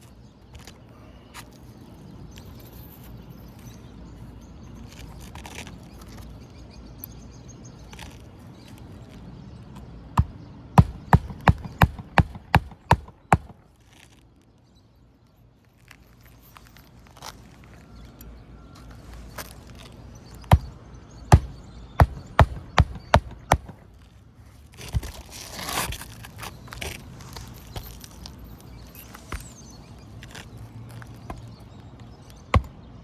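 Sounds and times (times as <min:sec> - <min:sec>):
hammer striking nail: 0:10.2 - 0:13.6, 0:20.5 - 0:20.7, 0:21.3 - 0:23.8, 0:32.5 - 0:32.8.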